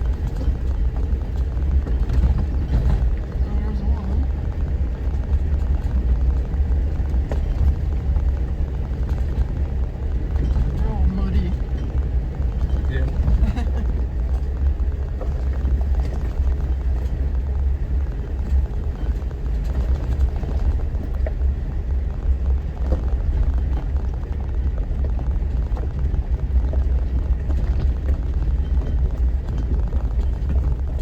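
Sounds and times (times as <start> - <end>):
vehicle engine and tyres rumbling: 0.0 - 31.0
small knocks and rattles: 22.2 - 31.0.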